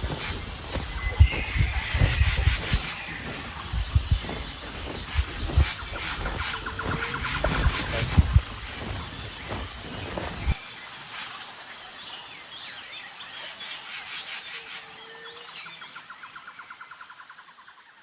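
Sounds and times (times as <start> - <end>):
birds chirping: 0.0 - 10.6
high insect buzz: 0.0 - 10.6
pulsing insect trill: 0.0 - 10.6.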